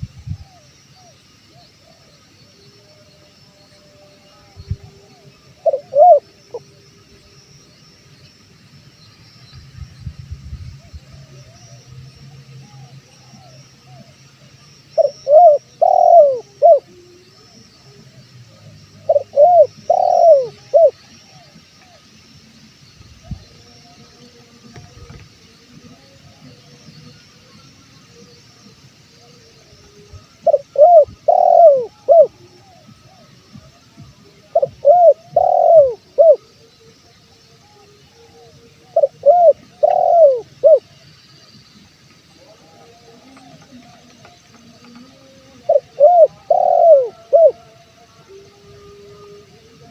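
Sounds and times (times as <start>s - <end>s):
faint bird chirps: 0.0s - 49.9s
faint background coos: 3.9s - 6.9s, 10.7s - 22.0s, 23.2s - 41.1s, 42.2s - 49.9s
dove cooing: 4.4s - 6.8s, 14.9s - 17.6s, 18.6s - 22.0s, 29.2s - 37.0s, 37.6s - 40.9s, 42.3s - 49.9s.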